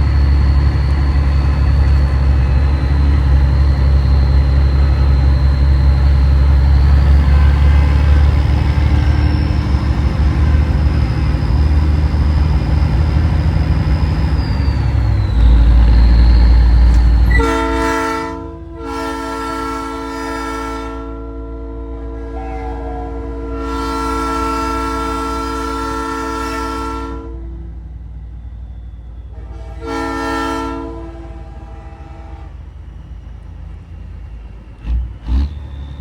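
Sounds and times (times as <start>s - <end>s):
truck engine droning: 0.0s - 36.0s
truck chime horn: 6.9s - 9.1s, 17.3s - 27.6s, 29.3s - 32.5s.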